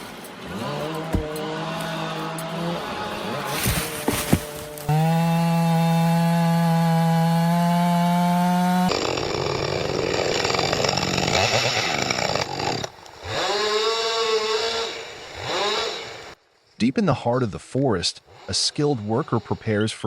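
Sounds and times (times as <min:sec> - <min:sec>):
chainsaw chain cutting wood: 0:00.0 - 0:16.4, 0:18.3 - 0:20.0
chainsaw whining at full throttle: 0:00.0 - 0:16.4, 0:18.3 - 0:20.0.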